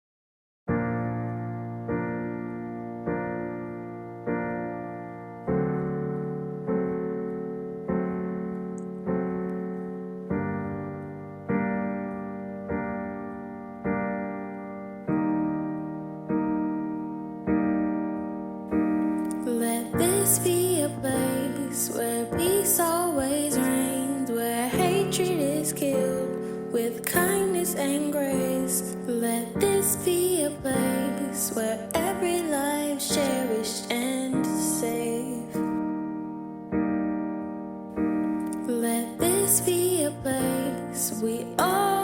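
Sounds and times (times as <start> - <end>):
piano chords: 0.7 - 42.0.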